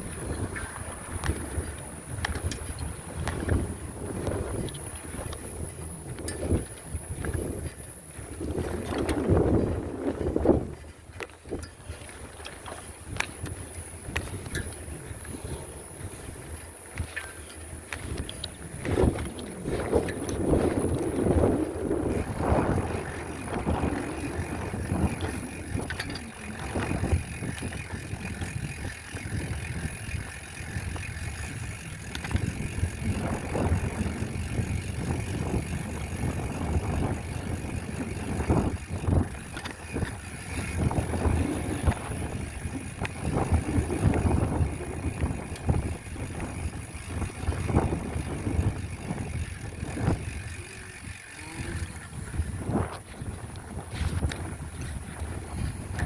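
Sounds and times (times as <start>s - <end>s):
bike clicks and rattles: 0.0s - 56.0s
wind buffeting microphone: 0.0s - 56.0s
road and tyre rumble: 13.1s - 56.0s.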